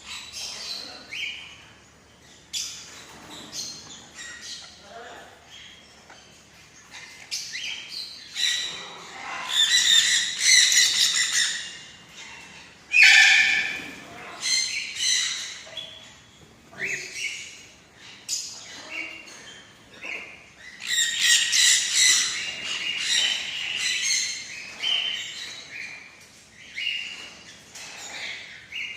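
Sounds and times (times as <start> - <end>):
parrot squawking and chattering: 6.8 - 15.8, 18.6 - 25.6.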